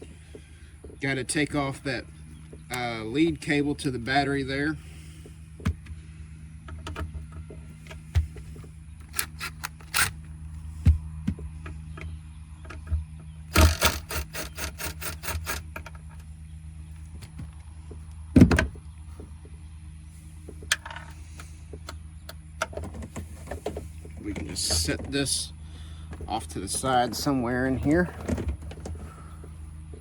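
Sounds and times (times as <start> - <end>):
low hum: 0.0 - 30.0
scattered tool clicks: 9.0 - 10.2, 13.5 - 16.0.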